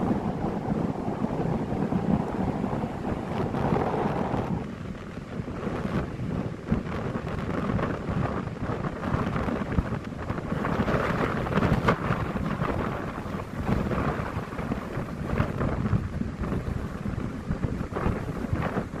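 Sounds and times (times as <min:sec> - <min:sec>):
storm wind buffeting microphone: 0:00.0 - 0:19.0.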